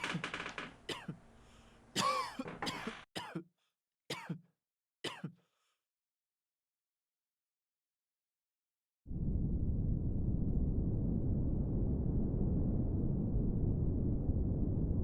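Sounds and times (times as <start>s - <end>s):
person coughing: 2.0s - 3.5s, 4.1s - 4.4s, 5.1s - 5.4s.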